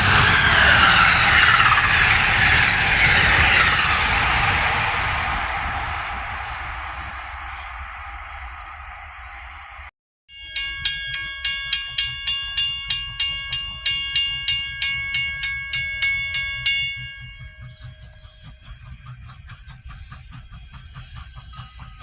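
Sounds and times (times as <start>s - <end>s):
grade-crossing bell ringing: 10.3s - 20.0s.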